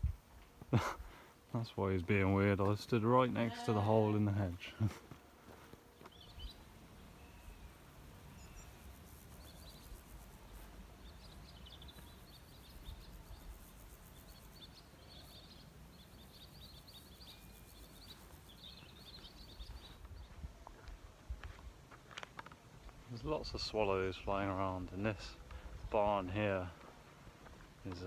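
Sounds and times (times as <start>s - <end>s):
swallows twittering: 8.3s - 20.0s.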